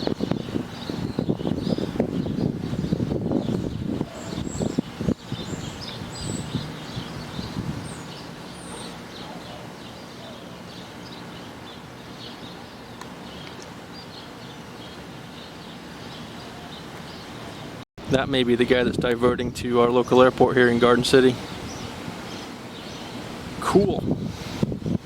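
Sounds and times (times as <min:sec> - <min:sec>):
low gusting rumble: 0:00.0 - 0:08.2, 0:18.0 - 0:22.2, 0:23.3 - 0:25.0
small birds chirping: 0:00.0 - 0:25.0.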